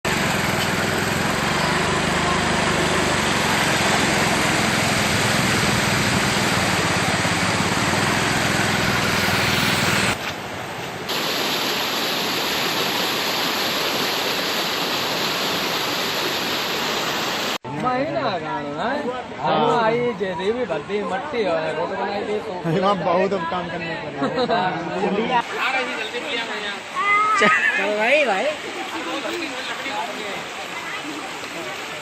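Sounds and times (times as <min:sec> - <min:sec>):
floodwater rushing: 0:00.1 - 0:17.6, 0:25.4 - 0:32.0.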